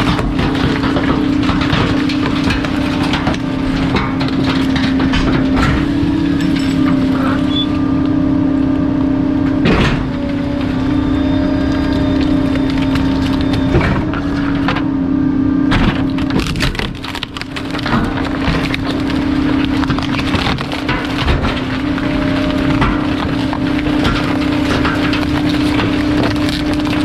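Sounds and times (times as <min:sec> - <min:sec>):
cracks of items being crushed: 0:00.0 - 0:07.5, 0:09.6 - 0:14.9, 0:15.7 - 0:27.0
garbage truck compactor hum: 0:00.0 - 0:27.0.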